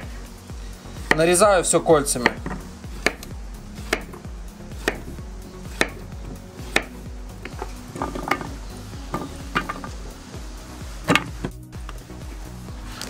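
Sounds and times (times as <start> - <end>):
background music: 0.0 - 13.0
knife chopping on plastic board: 2.2 - 4.2, 4.8 - 5.1, 5.7 - 7.6.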